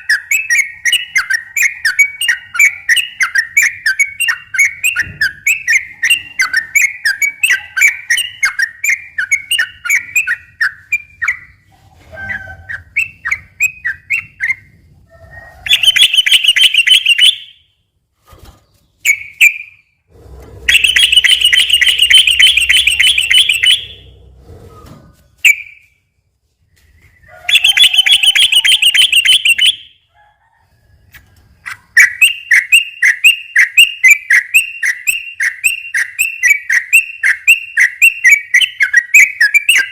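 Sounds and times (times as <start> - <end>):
bird chattering song: 0.0 - 11.7, 15.6 - 17.6, 20.7 - 24.2, 26.8 - 30.0, 31.7 - 39.9
bird rapid rolling trills: 20.2 - 24.6.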